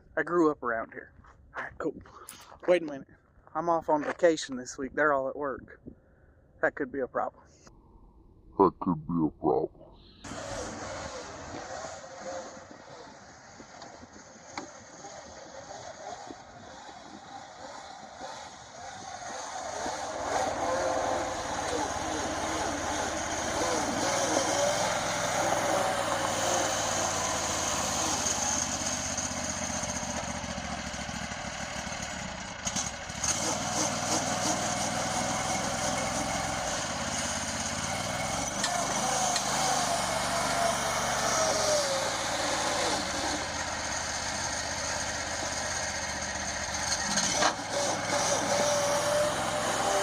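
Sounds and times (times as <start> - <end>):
small engine running: 10.0 - 50.0.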